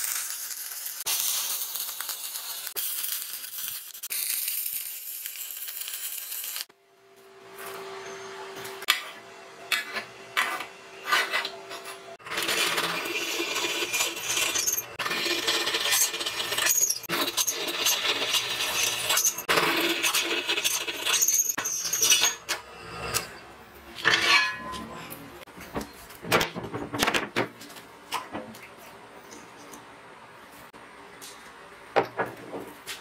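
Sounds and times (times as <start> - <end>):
drill press grinding through steel: 12.2 - 23.4.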